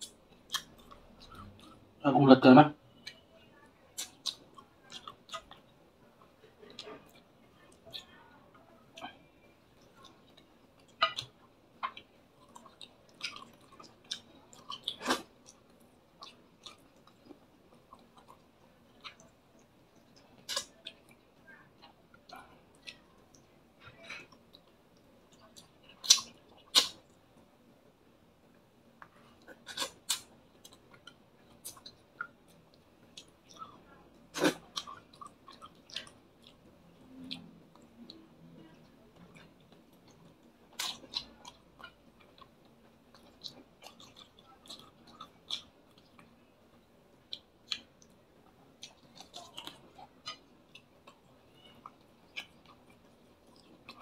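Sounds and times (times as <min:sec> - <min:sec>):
man chewing and lip smacking: 0:00.0 - 0:01.8, 0:04.0 - 0:05.6, 0:09.8 - 0:21.2, 0:21.8 - 0:27.2, 0:29.4 - 0:54.0.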